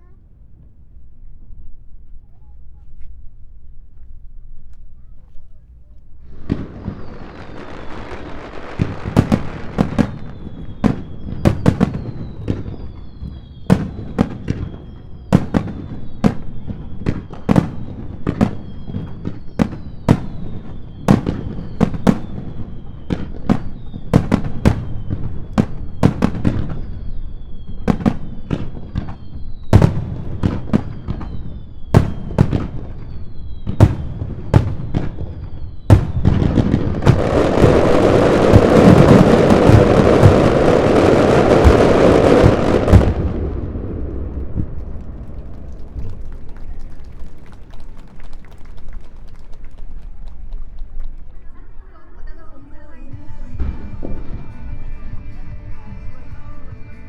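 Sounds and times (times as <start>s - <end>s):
rumbling echo: 6.2s - 48.2s
falling firework whistles: 6.2s - 49.6s, 53.3s - 55.0s.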